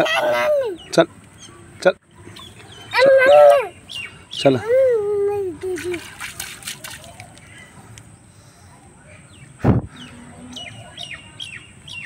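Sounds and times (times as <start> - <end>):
small birds chirping: 0.1 - 12.0
loud thump: 9.6 - 9.9.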